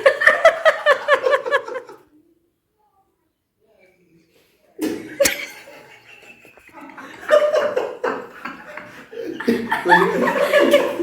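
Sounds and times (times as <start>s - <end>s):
muffled giggling and laughter: 0.0s - 2.1s, 5.0s - 11.0s.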